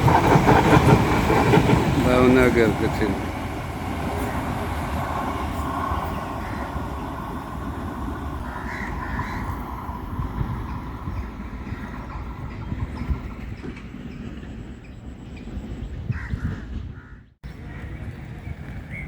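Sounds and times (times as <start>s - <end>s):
passenger train rumbling: 0.0s - 19.0s
bird calling: 2.2s - 9.7s.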